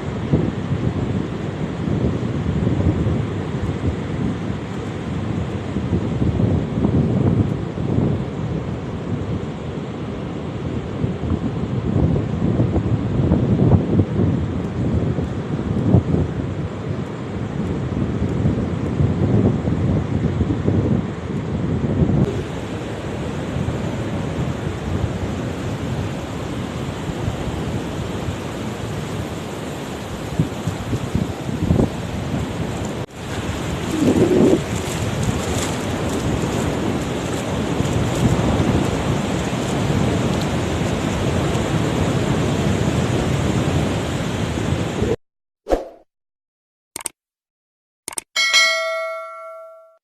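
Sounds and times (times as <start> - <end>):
wind on microphone: 0.0 - 45.2
sea surf rushing: 22.2 - 45.2.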